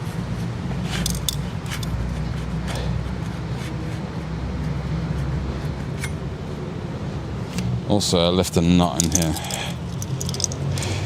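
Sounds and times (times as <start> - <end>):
low background hum: 0.0 - 11.0
metallic clicks of hand tools: 1.0 - 2.0, 9.0 - 11.0.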